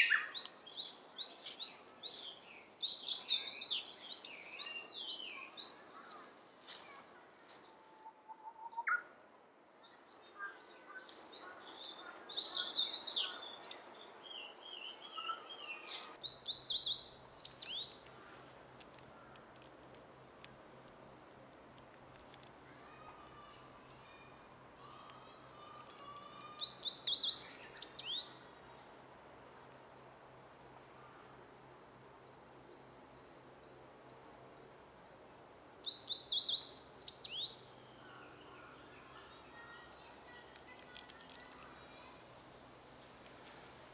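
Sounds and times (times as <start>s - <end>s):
songbirds singing: 0.0s - 6.8s, 9.8s - 18.4s, 24.8s - 28.9s, 31.0s - 42.3s.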